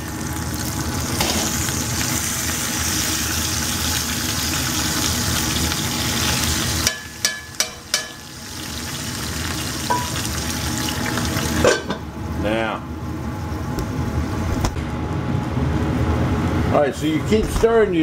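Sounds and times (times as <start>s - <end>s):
potatoes and onions sizzling in skillet: 0.0s - 11.6s
sharp metal spatula taps: 6.8s - 8.2s.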